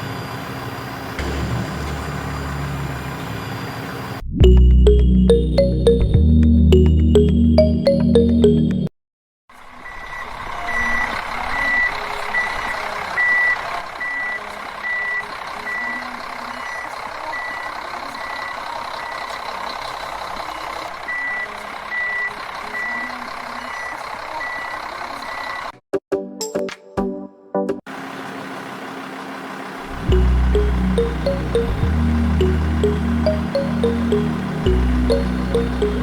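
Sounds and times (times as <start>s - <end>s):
truck reversing alarm beeping: 4.5s - 8.8s, 9.8s - 25.7s, 30.0s - 36.0s
engine hum: 27.9s - 36.0s.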